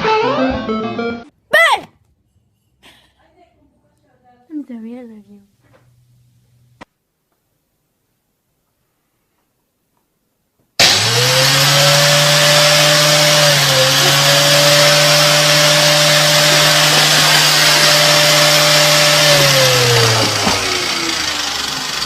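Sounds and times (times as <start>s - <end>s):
electric motor appliance whining: 10.8s - 22.0s.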